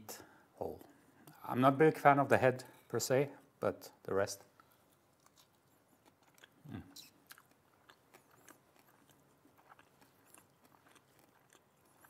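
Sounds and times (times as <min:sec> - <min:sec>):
faint chewing with wet clicks: 0:04.5 - 0:12.0.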